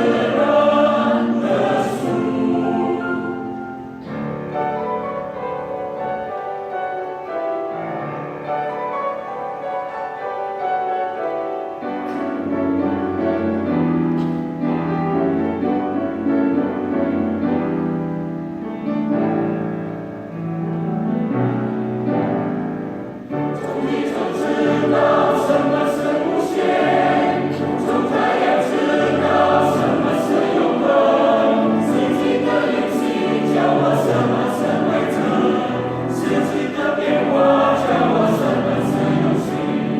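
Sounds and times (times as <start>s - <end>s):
choir singing: 0.0s - 7.8s, 23.2s - 39.9s.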